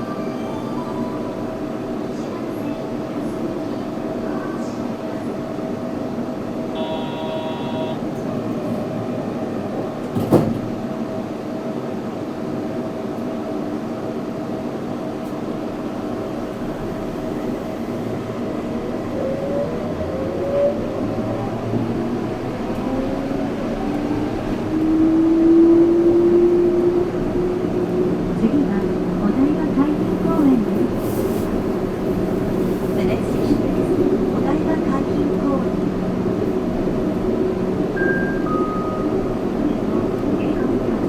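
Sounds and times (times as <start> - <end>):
train tyres and motors hum: 0.0 - 41.0
short high-pitched tone: 6.8 - 8.0.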